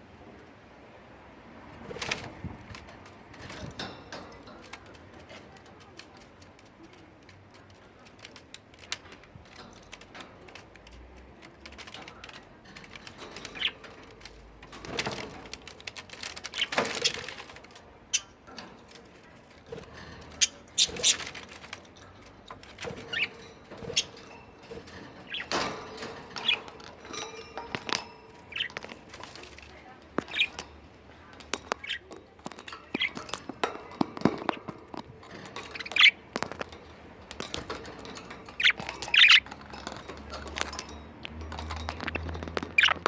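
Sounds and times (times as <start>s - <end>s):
budgerigars chirping: 13.1s - 14.0s, 15.0s - 17.3s, 20.3s - 21.8s, 22.7s - 30.6s, 31.2s - 34.6s, 35.4s - 40.7s, 41.6s - 43.0s.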